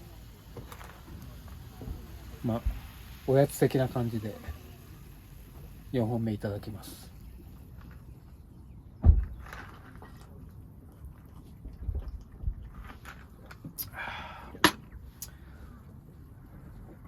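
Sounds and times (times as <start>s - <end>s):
can opening fizzing hiss: 0.0s - 7.3s
soft thuds: 9.0s - 9.6s.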